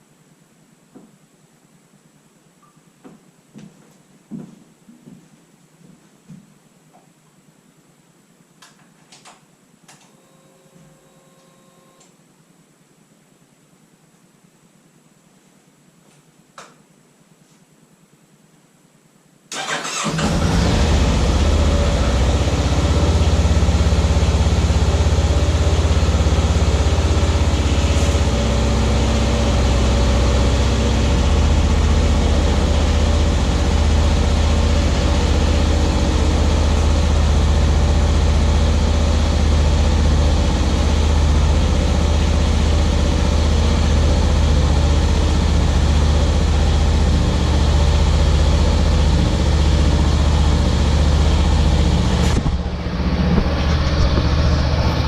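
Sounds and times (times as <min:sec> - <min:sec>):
atv engine starting and idling: 0:19.5 - 0:55.0.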